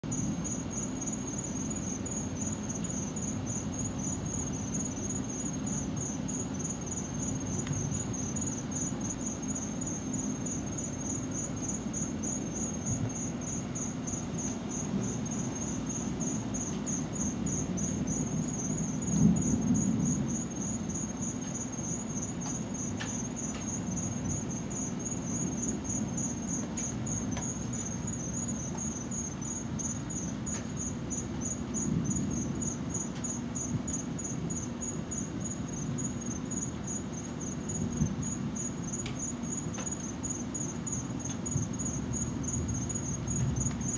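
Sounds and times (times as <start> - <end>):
insects chirping: 0.0 - 43.9
distant thunder rumbling: 14.8 - 21.2, 31.8 - 32.8, 41.5 - 43.9.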